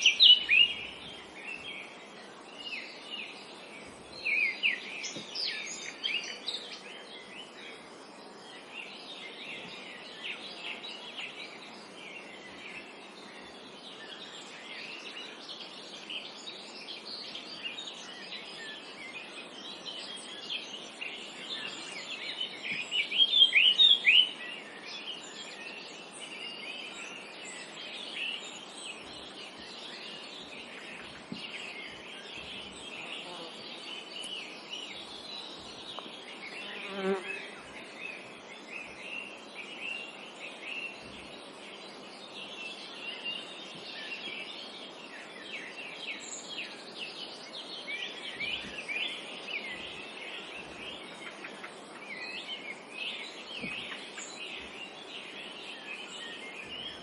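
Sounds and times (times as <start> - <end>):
bird singing high chirps: 0.0 - 1.0
forest ambience hiss: 0.0 - 57.0
small birds chirping and singing: 0.0 - 57.0.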